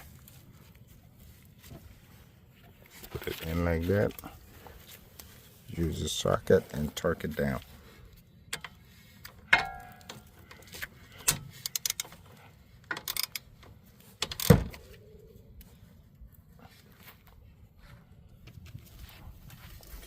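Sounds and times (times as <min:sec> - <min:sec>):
ringing metallic clank: 0:09.5 - 0:10.2
ratchet clicking: 0:11.6 - 0:12.1, 0:13.0 - 0:13.4.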